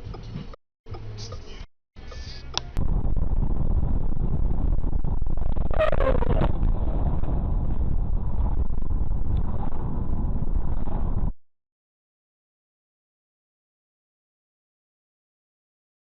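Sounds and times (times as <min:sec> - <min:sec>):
road and engine rumble: 0:00.0 - 0:11.4.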